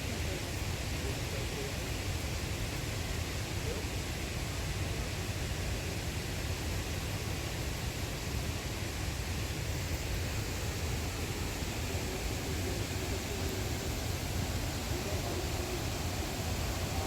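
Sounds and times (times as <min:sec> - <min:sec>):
waterfall and rapids rushing: 0:09.5 - 0:17.0.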